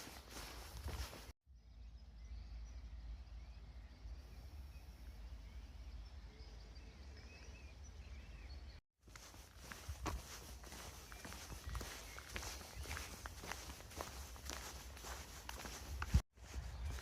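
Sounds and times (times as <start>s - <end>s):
faint birdsong chirping: 0.0s - 17.0s
wind on microphone: 15.1s - 17.0s.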